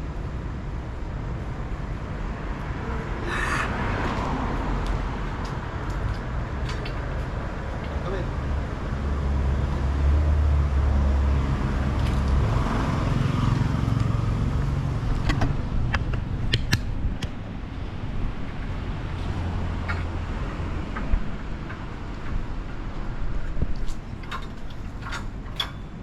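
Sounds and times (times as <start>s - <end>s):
hum of passing vehicles: 0.0s - 26.0s
sharp clicks: 15.2s - 17.4s.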